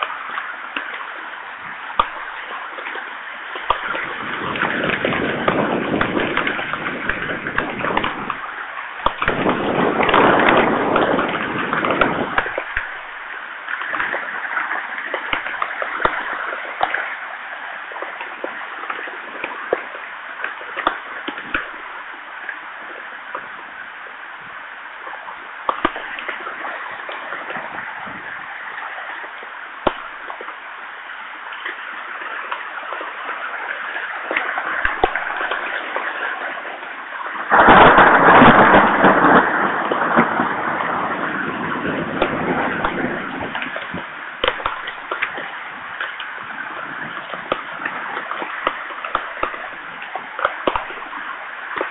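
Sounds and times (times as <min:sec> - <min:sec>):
raindrop taps: 0:00.0 - 0:03.0, 0:03.6 - 0:17.2, 0:18.0 - 0:21.8, 0:25.0 - 0:28.2, 0:29.2 - 0:30.6, 0:31.5 - 0:36.8, 0:41.8 - 0:51.9
heavy rain hiss: 0:00.0 - 0:51.9.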